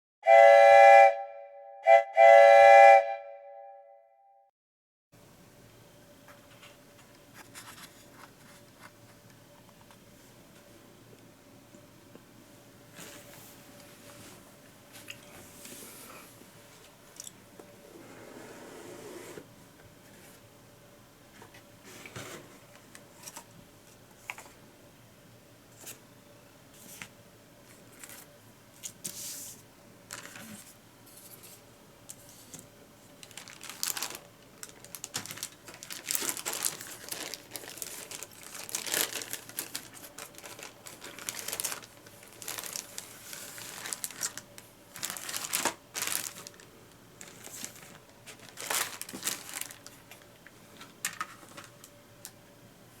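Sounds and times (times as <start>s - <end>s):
plastic packaging crinkling: 33.2s - 51.8s.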